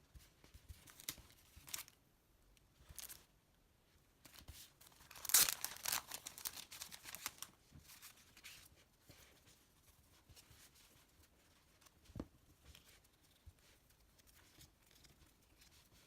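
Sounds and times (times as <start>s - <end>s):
packaging torn and crinkled: 4.9s - 7.5s.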